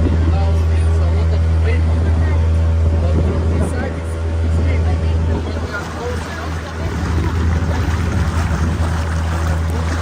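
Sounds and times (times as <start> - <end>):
motorboat engine humming: 0.0 - 10.0
water rushing along hull: 0.0 - 10.0
wind noise: 6.6 - 10.0.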